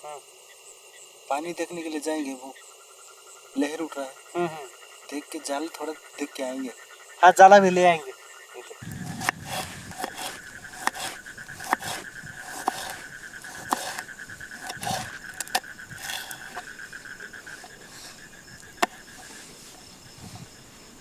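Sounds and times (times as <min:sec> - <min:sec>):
night animal trilling: 0:03.4 - 0:21.0
sharp clicks and knocks: 0:08.8 - 0:19.9.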